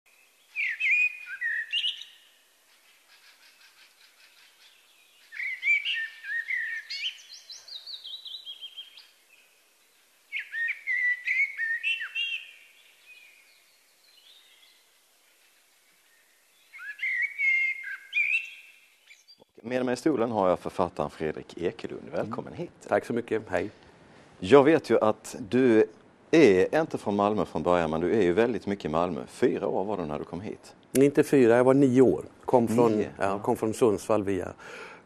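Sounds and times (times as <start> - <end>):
songbird singing: 0.1 - 19.6.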